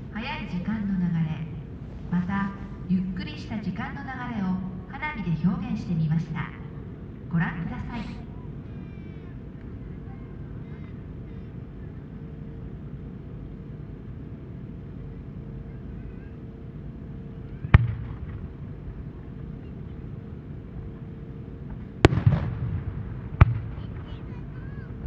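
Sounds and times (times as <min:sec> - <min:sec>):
low background noise: 0:00.0 - 0:25.0
firework booms: 0:22.0 - 0:24.3.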